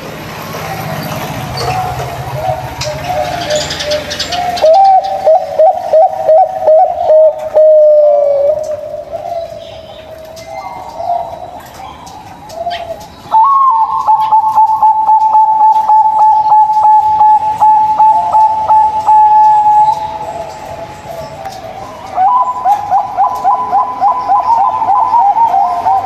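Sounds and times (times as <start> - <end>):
dove cooing: 0.0 - 26.0.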